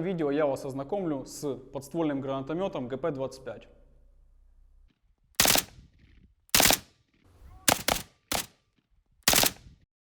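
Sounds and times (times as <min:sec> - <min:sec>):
gunshots: 0:05.4 - 0:05.9, 0:06.5 - 0:07.0, 0:07.6 - 0:08.6, 0:09.2 - 0:09.8.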